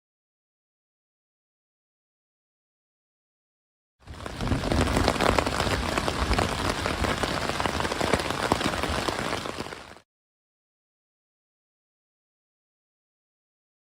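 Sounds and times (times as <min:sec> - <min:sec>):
heavy rain falling: 0:04.0 - 0:10.0.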